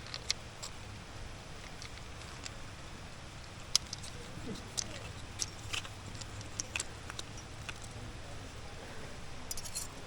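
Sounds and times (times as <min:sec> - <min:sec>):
low background rumble: 0:00.0 - 0:10.0
metallic clinking: 0:03.4 - 0:08.0, 0:09.5 - 0:10.0.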